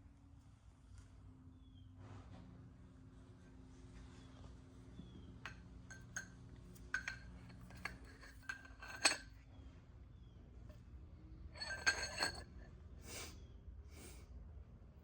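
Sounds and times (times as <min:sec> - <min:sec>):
metal parts clinking: 0:05.9 - 0:09.3, 0:11.6 - 0:12.5.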